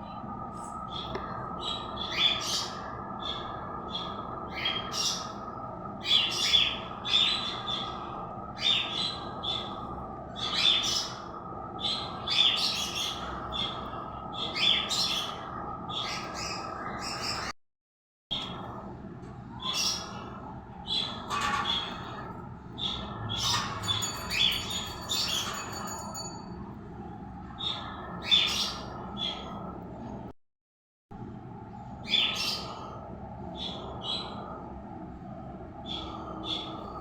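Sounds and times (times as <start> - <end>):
steady background hum: 0.0 - 17.6, 18.3 - 30.4, 31.1 - 37.0
bird chirping: 22.8 - 26.3.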